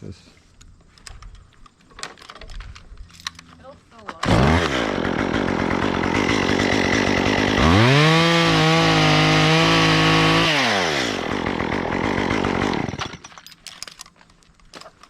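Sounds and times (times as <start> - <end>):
chainsaw idling and revving: 4.2 - 13.3.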